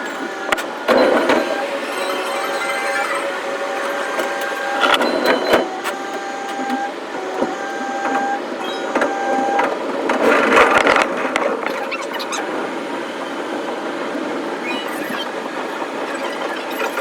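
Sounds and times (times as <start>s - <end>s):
short high whining tones: 0.2s - 7.0s.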